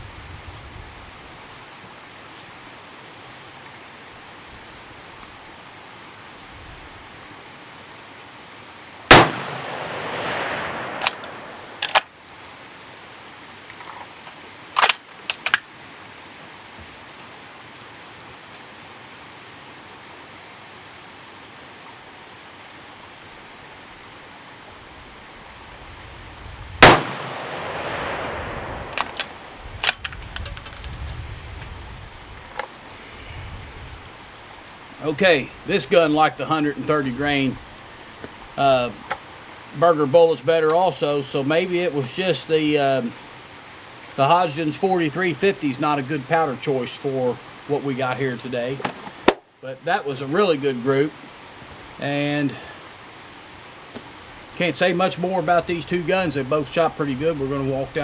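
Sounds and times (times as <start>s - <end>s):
rifle shots with echo: 9.1s - 12.0s, 26.8s - 29.2s
rifle bolt metallic clicks: 11.0s - 12.1s, 14.8s - 15.6s, 28.8s - 31.1s.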